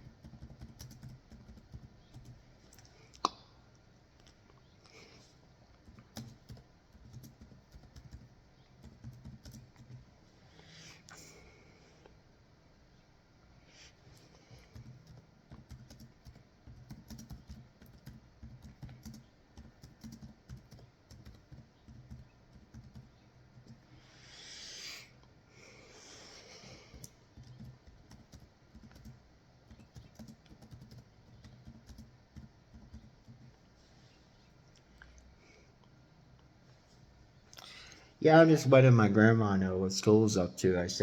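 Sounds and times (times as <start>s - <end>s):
faint keyboard typing: 0.0s - 3.2s, 5.7s - 10.1s, 14.1s - 24.0s, 26.4s - 33.8s.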